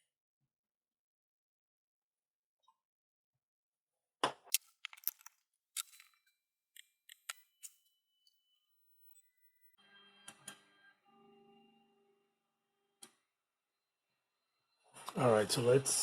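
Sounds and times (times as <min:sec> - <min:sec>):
metal tools clicking and clanking: 0:04.8 - 0:06.1.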